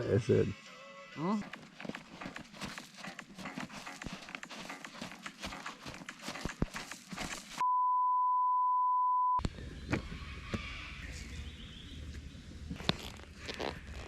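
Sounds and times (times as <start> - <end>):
high pure beep: 7.6 - 9.4.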